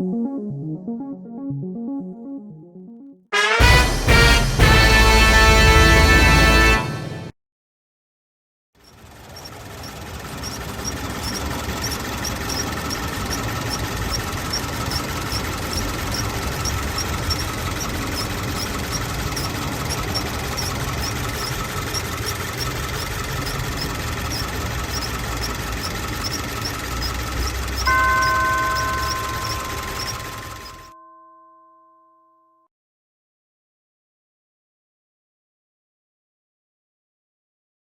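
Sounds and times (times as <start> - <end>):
car engine idling: 8.8 - 30.9
faint high-pitched chirp: 27.8 - 31.0
steady multi-pitched tone: 27.8 - 31.0.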